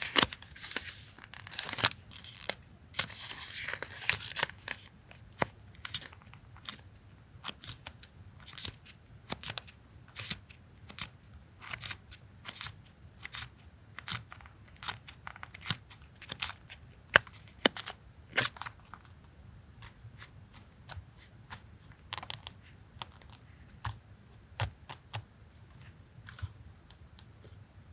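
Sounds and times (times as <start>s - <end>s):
paper rustling: 0.0s - 6.7s.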